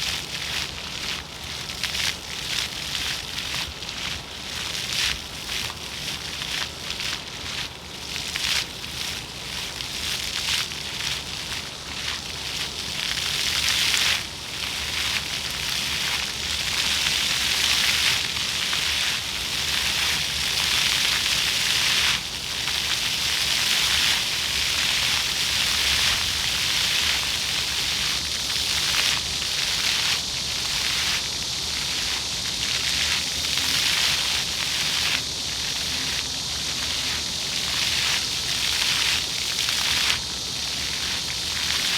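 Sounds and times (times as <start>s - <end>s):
fountain jets splashing on paving: 0.0s - 41.9s.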